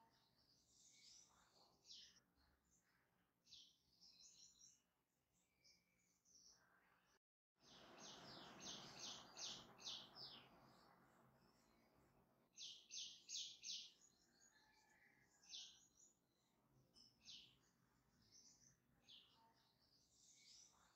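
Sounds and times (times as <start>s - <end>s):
small bird chirping: 7.6s - 12.0s, 12.6s - 20.9s.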